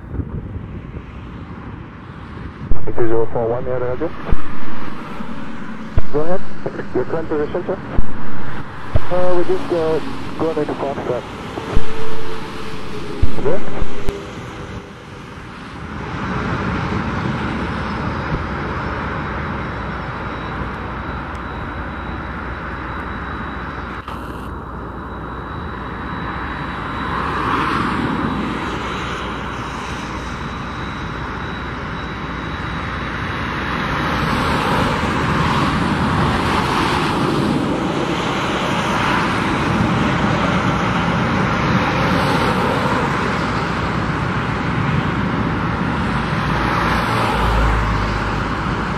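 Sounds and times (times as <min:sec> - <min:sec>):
jet engines roaring: 0:00.0 - 0:48.9.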